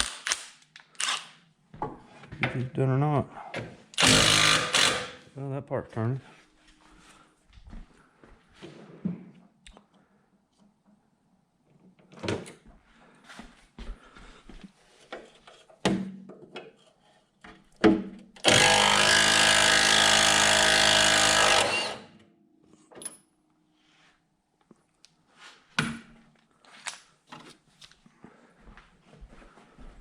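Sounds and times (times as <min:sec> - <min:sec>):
handheld power tool running: 0:04.0 - 0:05.2, 0:18.4 - 0:22.2.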